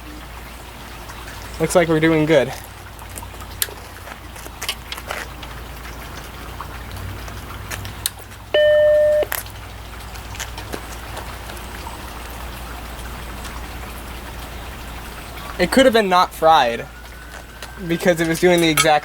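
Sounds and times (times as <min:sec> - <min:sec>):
low steady hum: 0:08.4 - 0:10.0
computer startup beep: 0:08.6 - 0:09.3.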